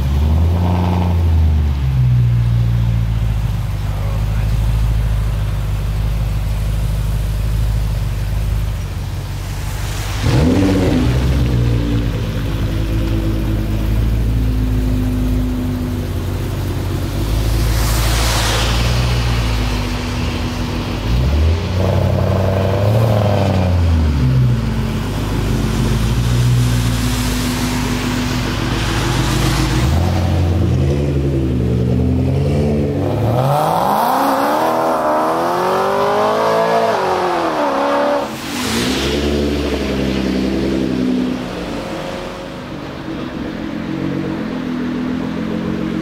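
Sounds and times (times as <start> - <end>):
car engine revving: 0.0 - 46.0.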